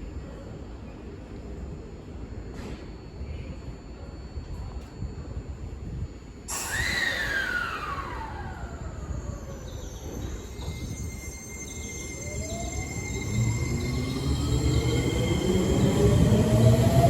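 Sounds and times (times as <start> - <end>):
low rumble of train: 0.0 - 17.0
train motor whine: 6.5 - 17.0.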